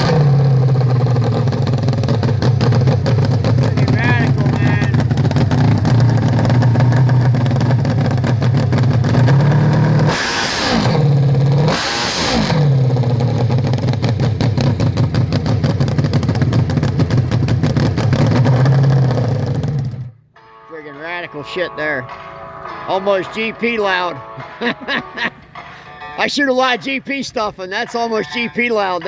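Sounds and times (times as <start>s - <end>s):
motorcycle engine revving: 0.0s - 20.2s.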